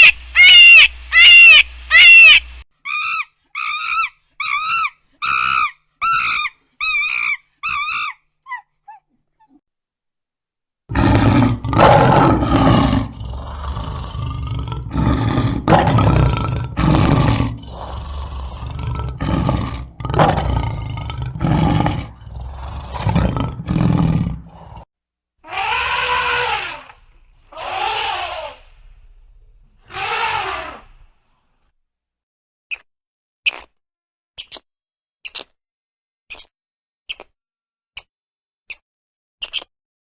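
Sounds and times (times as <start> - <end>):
animal roaring: 10.9 - 31.1
drawn-out animal calls: 25.5 - 31.0.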